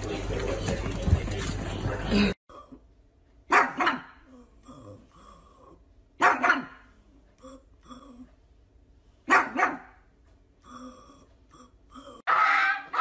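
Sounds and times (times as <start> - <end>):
dog barking: 3.5 - 4.2, 6.2 - 6.9, 9.3 - 10.0, 12.3 - 13.0.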